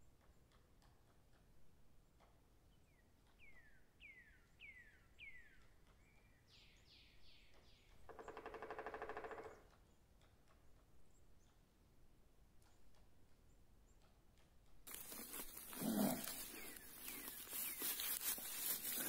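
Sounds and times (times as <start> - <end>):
footsteps in dry leaves: 14.9 - 19.0.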